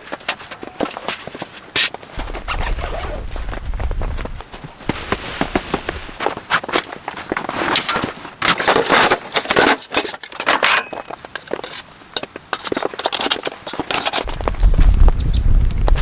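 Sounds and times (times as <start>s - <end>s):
snow crunching and scraping: 0.7s - 9.3s
low rumble: 2.2s - 6.2s, 14.3s - 16.0s.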